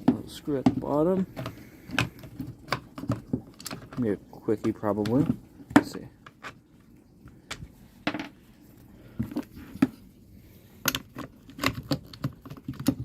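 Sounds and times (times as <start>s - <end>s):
plastic and metal parts clicking: 10.8s - 13.0s.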